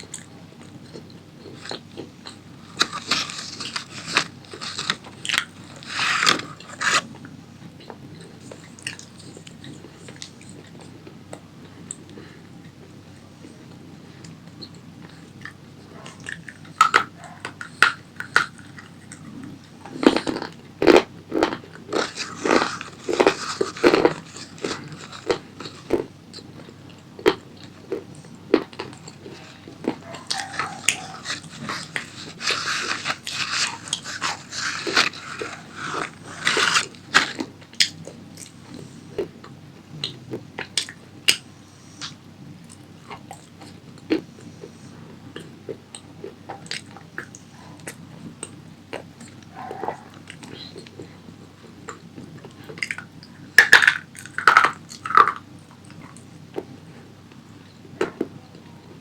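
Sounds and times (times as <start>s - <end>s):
crunching snack: 0.0s - 10.9s, 15.4s - 39.2s, 53.6s - 56.2s.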